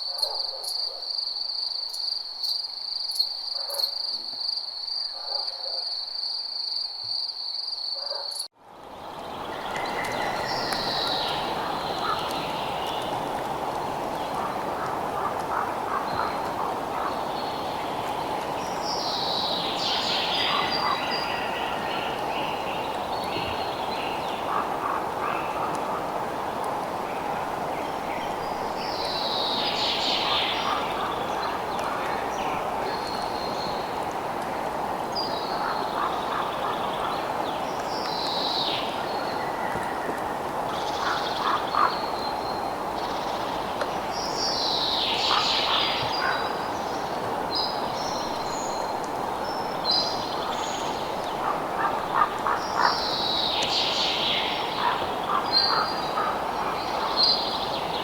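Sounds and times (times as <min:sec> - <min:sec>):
high insect trill: 0:00.0 - 0:05.1
dense chorus-like hiss: 0:08.7 - 0:58.0
bird calls: 0:09.2 - 0:13.4, 0:14.1 - 0:18.0, 0:28.2 - 0:33.9, 0:44.2 - 0:47.0.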